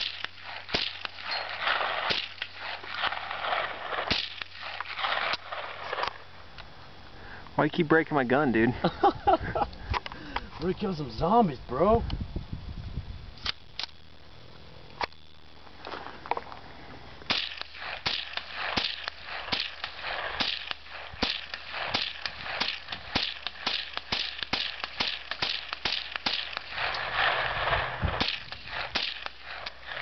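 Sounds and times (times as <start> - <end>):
rifle shots: 0.0 - 6.2, 17.3 - 30.0.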